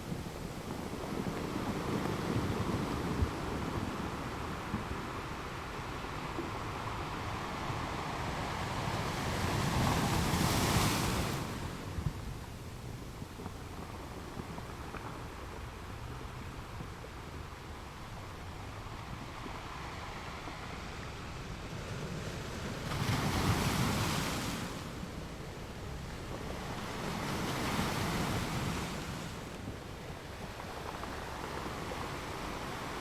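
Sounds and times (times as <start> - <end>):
sea waves breaking on shore: 0.0 - 12.6, 18.6 - 33.0.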